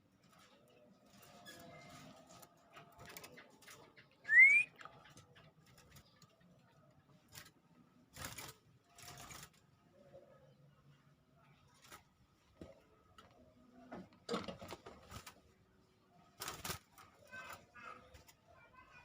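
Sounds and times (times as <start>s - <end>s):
canary rising chirp: 4.2s - 4.8s.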